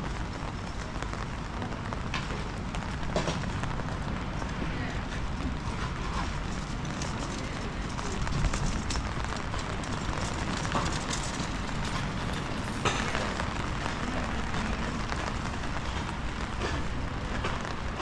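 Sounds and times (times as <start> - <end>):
rain hiss on street: 0.0 - 18.0
wind buffeting microphone: 0.2 - 17.9.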